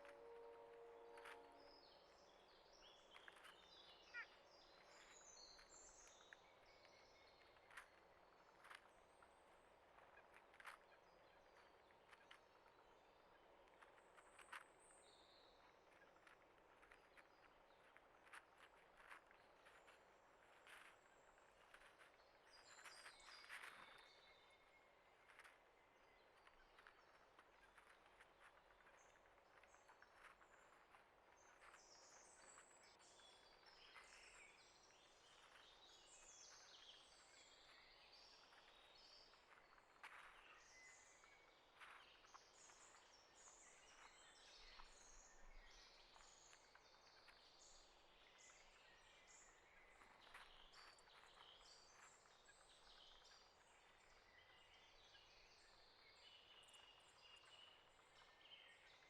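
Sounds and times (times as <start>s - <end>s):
low outdoor hiss: 0.0s - 2.8s
small birds chirping: 2.0s - 59.0s.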